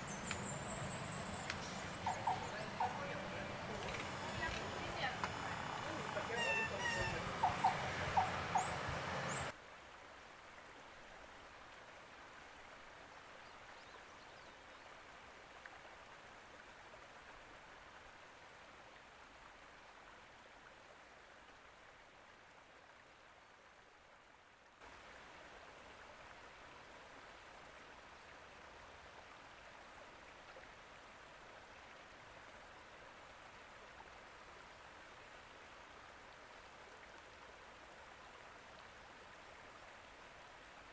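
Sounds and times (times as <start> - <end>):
loud chirping: 0.0 - 9.5
flowing water rushing: 0.0 - 40.9.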